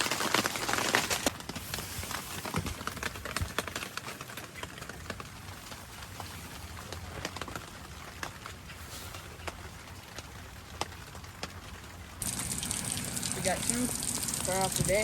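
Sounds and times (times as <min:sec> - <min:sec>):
freezing rain hissing on tarp: 0:00.0 - 0:15.0
sharp drops ticking: 0:12.2 - 0:15.0.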